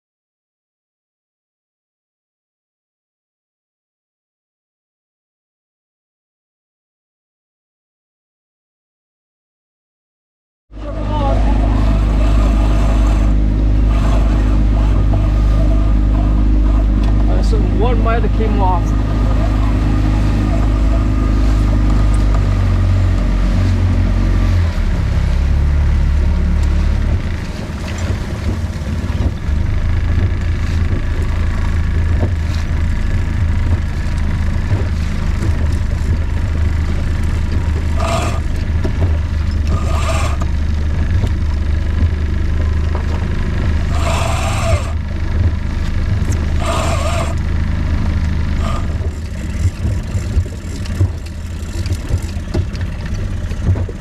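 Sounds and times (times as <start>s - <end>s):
boat engine running: 10.7s - 54.0s
short bursts of noise: 43.8s - 45.0s.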